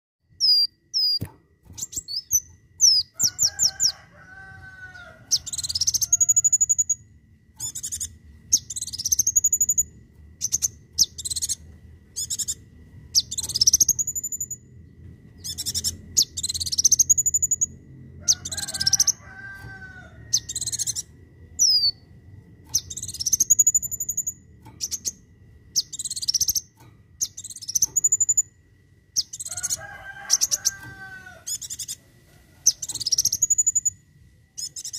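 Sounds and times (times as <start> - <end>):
high upslurred bird calls: 15.4 - 22.0, 29.2 - 32.0, 32.6 - 34.0.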